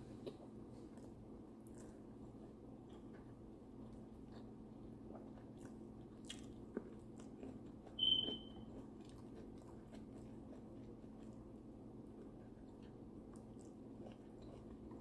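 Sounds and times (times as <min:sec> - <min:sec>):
low steady hum: 0:00.0 - 0:15.0
chewing with wet mouth clicks: 0:00.2 - 0:15.0
short high squeak: 0:08.0 - 0:08.5.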